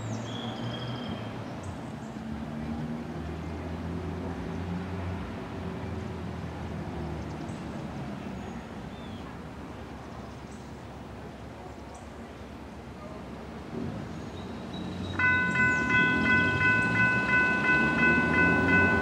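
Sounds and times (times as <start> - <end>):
bird chirps: 14.4 - 18.9
distant train rumbling: 14.8 - 19.0.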